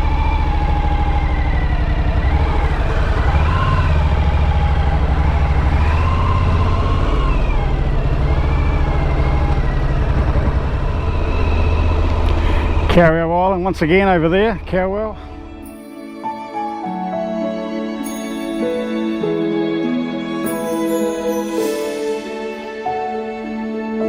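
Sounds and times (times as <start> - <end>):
motorcycle engine running: 0.0 - 15.7.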